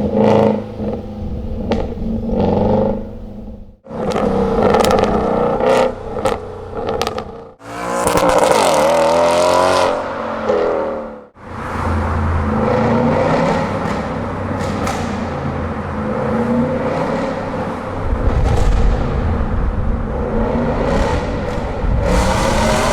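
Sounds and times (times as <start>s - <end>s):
exhaust crackling pops: 0.0s - 8.8s, 18.1s - 22.5s
car engine revving: 0.0s - 22.9s.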